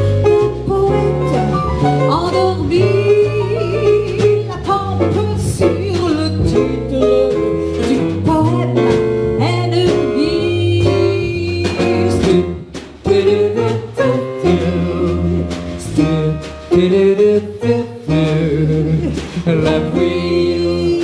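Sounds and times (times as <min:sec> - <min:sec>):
jazz quartet playing: 0:00.0 - 0:21.0
woman singing: 0:00.4 - 0:12.3, 0:18.7 - 0:21.0.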